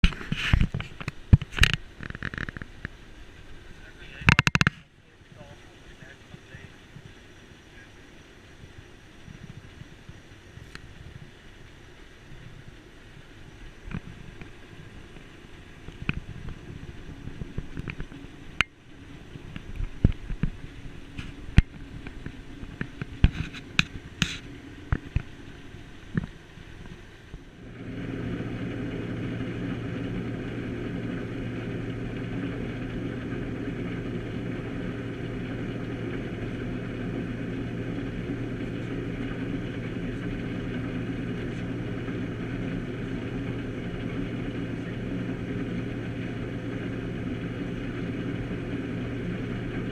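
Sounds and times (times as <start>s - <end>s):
combine harvester drone: 0.0s - 49.9s
faint hum: 0.0s - 49.9s
knocks and clicks: 4.3s - 4.8s.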